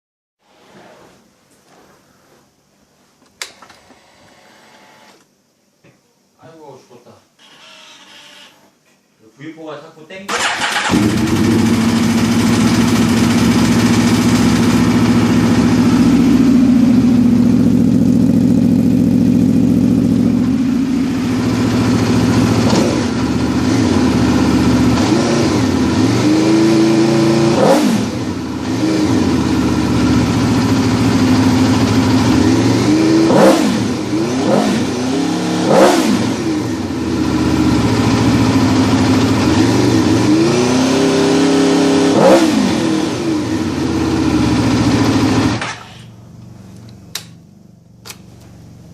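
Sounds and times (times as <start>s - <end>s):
motorcycle engine idling: 10.4s - 25.0s, 28.3s - 32.8s, 36.7s - 40.2s, 43.5s - 48.9s.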